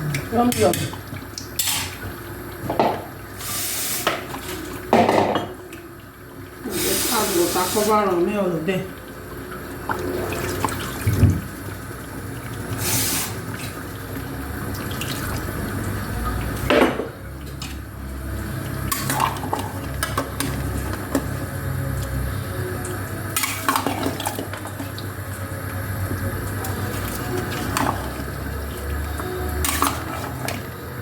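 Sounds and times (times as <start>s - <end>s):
pot and utensils clanking: 1.6s - 2.0s, 18.8s - 21.4s, 23.4s - 25.0s, 29.6s - 30.7s.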